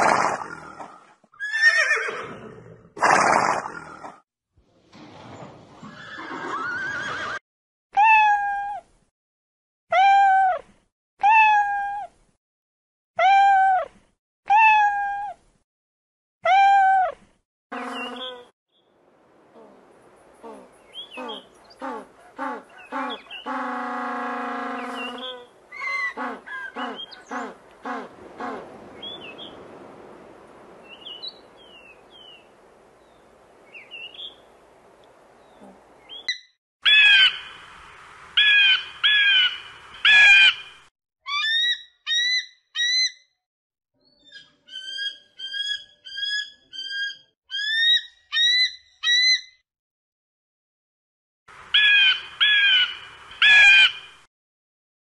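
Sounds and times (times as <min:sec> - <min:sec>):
bird calls: 0:17.7 - 0:18.5, 0:20.4 - 0:23.9, 0:24.6 - 0:29.7, 0:51.7 - 0:54.2
loud harsh bird squawks: 0:51.8 - 0:54.2.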